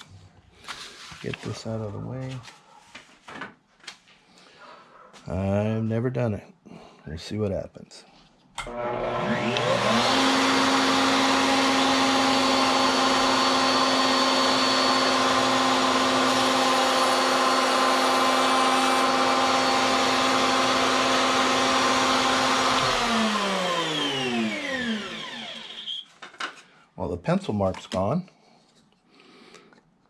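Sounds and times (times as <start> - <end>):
router bit spinning down: 8.6 - 26.0
router motor whine: 8.6 - 26.0.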